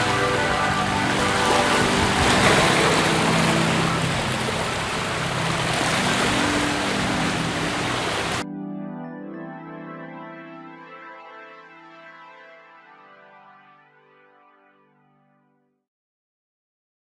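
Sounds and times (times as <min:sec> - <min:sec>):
rushing water: 0:00.0 - 0:08.4
soft background music: 0:00.0 - 0:15.6.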